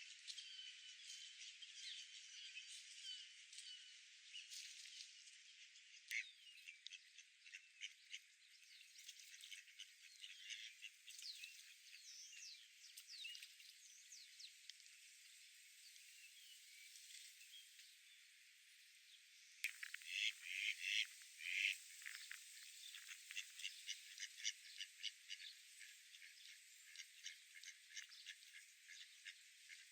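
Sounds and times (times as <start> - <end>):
small birds chirping: 19.6 - 29.9.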